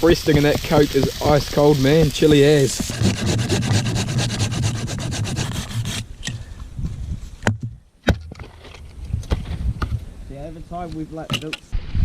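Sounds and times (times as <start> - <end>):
rhythmic rasping scrape: 2.7 - 6.0.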